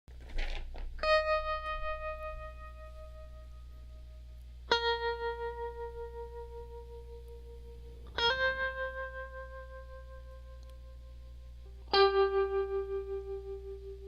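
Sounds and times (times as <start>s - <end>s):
guitar notes with effects: 1.0s - 14.0s.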